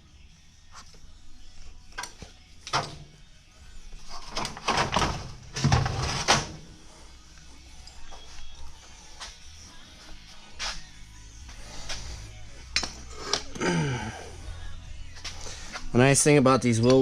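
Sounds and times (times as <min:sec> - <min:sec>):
metal rattling and scraping: 0:04.0 - 0:06.8
metal clanks and knocks: 0:04.2 - 0:06.6.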